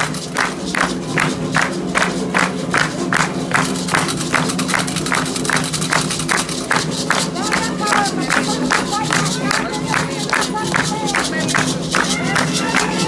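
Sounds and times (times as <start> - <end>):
hand drums beating: 0.0 - 13.0
voices singing: 7.4 - 13.0.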